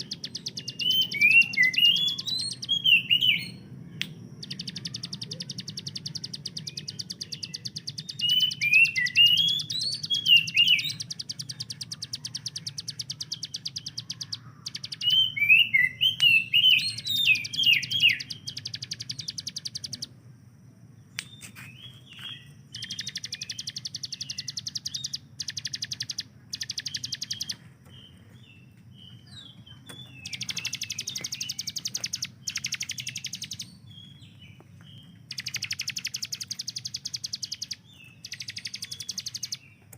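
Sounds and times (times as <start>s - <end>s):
swooping bird chirps: 0.0s - 20.2s, 21.0s - 39.9s
steady low hum: 0.0s - 39.9s
bird rattling trill: 30.2s - 33.6s, 35.3s - 39.6s.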